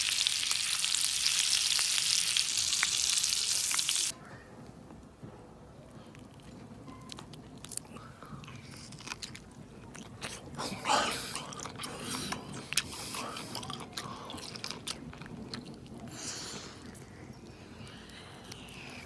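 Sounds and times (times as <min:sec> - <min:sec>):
man chewing food: 0:06.1 - 0:19.0
breathy noises: 0:07.7 - 0:19.0.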